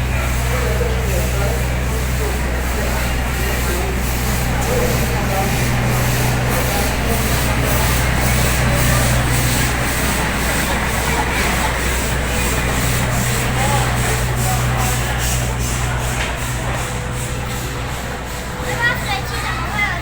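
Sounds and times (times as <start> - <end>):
steam locomotive working: 0.0 - 20.0.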